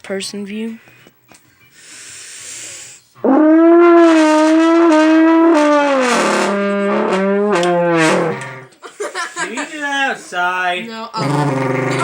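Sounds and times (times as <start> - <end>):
hiss of air: 1.8 - 3.1.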